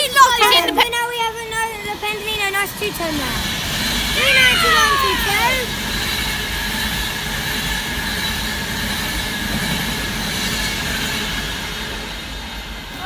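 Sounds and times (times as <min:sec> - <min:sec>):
train passing at speed: 0:00.0 - 0:13.0.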